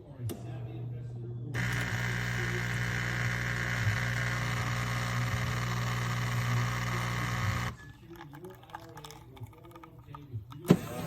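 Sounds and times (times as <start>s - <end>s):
espresso machine buzzing: 1.6s - 8.3s.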